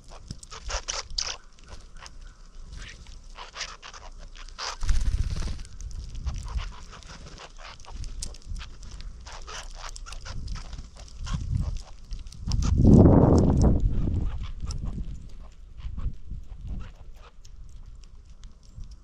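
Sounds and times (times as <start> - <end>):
small birds chirping: 0.0 - 19.0
wind buffeting microphone: 4.8 - 18.0.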